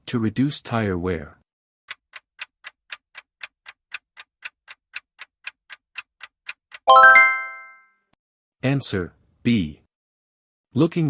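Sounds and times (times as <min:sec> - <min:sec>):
clock-like ticking: 0:01.9 - 0:06.8
bright bell chime: 0:06.9 - 0:07.8.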